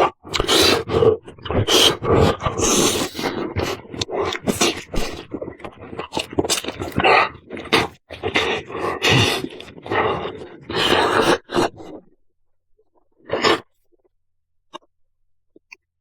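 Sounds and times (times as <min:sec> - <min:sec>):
wet chewing and mouth smacking: 0:00.0 - 0:12.2, 0:14.7 - 0:14.9.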